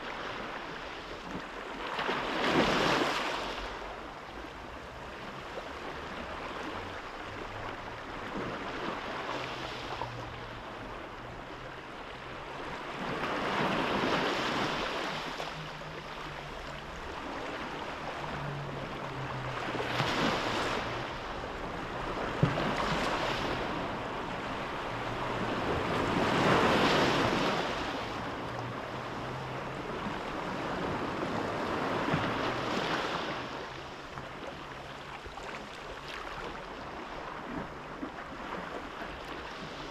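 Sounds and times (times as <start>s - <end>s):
sea waves washing on shore: 0.0s - 39.9s.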